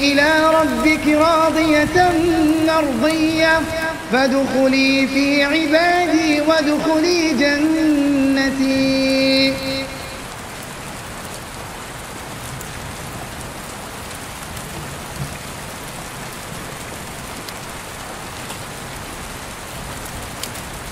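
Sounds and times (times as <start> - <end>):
steady rain: 0.0 - 20.9
faint raindrop ticks: 2.4 - 3.9, 9.0 - 20.9.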